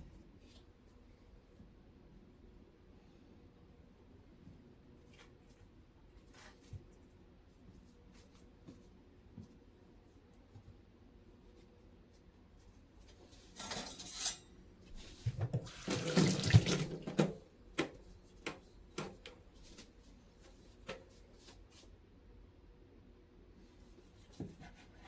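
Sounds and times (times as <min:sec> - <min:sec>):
tap running into sink: 0:15.3 - 0:17.9.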